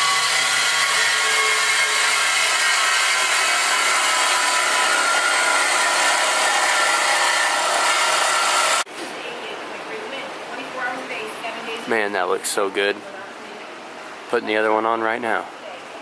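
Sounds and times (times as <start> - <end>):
power tool hissing and whining: 0.0 - 8.8.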